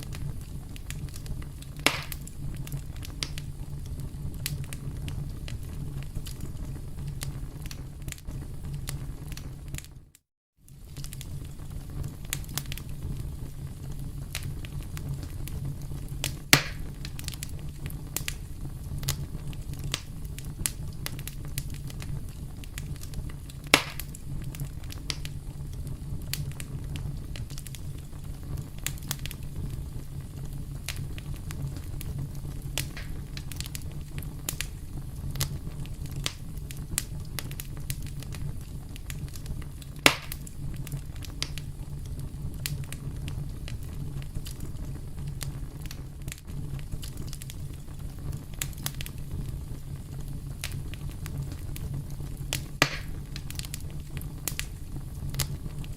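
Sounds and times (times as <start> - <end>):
campfire crackling: 0.0 - 55.9
loud sharp pops: 1.8 - 2.3, 16.5 - 16.9, 23.7 - 24.2, 32.8 - 33.2, 40.0 - 40.5, 52.8 - 53.2.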